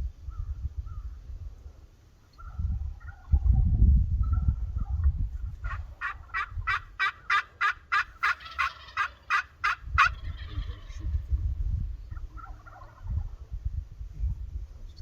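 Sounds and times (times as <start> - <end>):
turkey yelping: 2.2 - 3.5, 4.2 - 11.0, 12.2 - 13.0.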